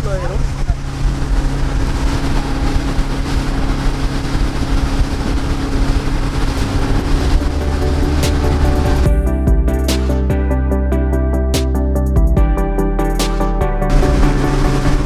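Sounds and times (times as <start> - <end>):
water rushing behind boat: 0.0 - 9.1, 13.9 - 15.0
speedboat engine drone: 0.0 - 10.0, 13.9 - 15.0.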